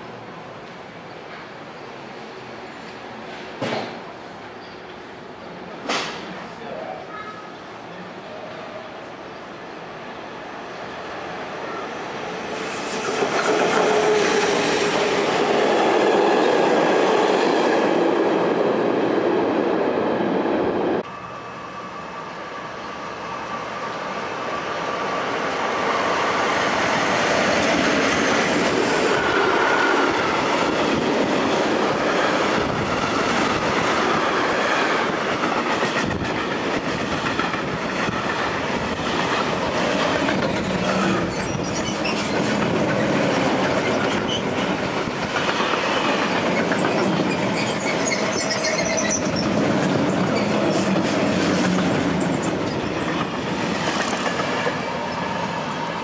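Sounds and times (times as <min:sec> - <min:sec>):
electric train passing at speed: 0:00.0 - 0:56.0
freight train wheels rumbling on rails: 0:11.2 - 0:21.2, 0:22.4 - 0:56.0.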